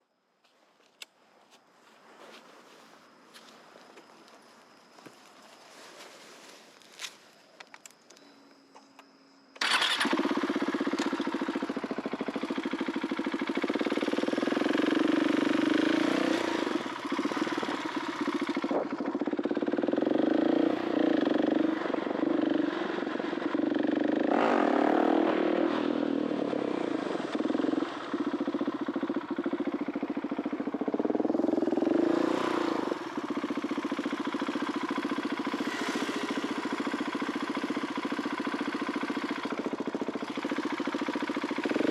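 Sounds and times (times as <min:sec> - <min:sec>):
motorcycle engine starting and revving: 0:08.9 - 0:41.9.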